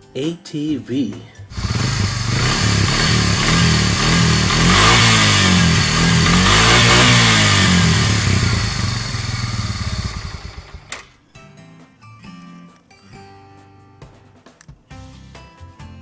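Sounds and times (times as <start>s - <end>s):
quad bike engine revving: 1.5s - 11.0s.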